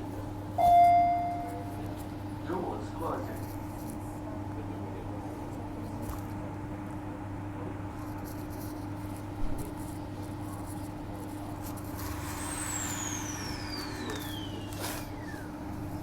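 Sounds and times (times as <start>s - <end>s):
train motor hum: 11.6s - 16.0s
electric whine falling in pitch: 12.3s - 15.6s.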